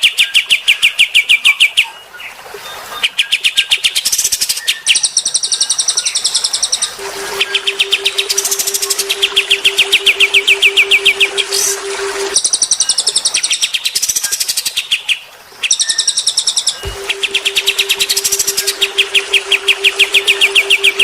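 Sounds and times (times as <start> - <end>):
low pulsing tone: 7.0 - 12.4, 16.8 - 21.0.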